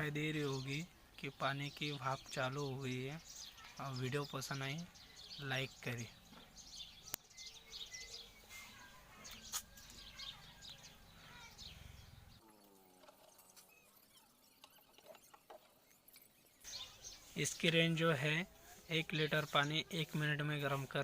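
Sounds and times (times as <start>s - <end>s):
distant bird chirps: 0.0s - 20.3s.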